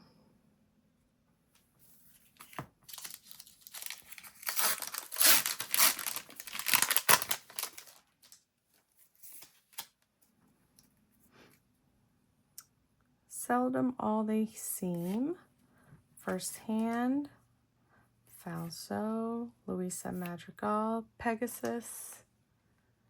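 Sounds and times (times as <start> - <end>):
foil wrapper tearing and crinkling: 2.4 - 8.4.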